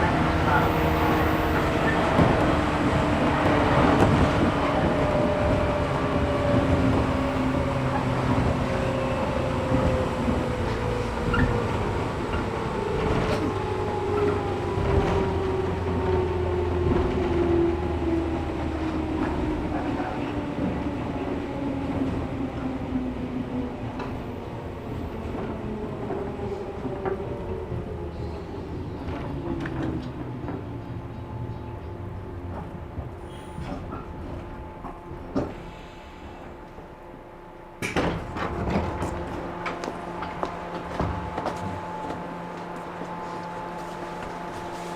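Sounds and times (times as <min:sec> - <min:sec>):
rumble of wheels on rail: 0:00.0 - 0:44.9
clicks from rail joints: 0:37.8 - 0:44.9.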